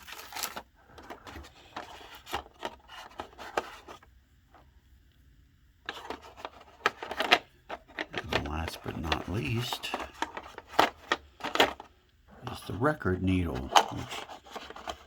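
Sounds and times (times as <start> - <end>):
wooden parts knocking and rubbing: 5.9 - 11.9, 13.6 - 15.0.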